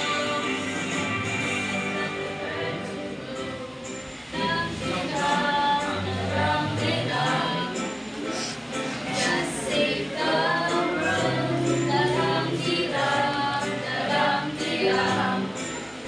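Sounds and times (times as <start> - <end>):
choir singing: 0.0 - 16.0.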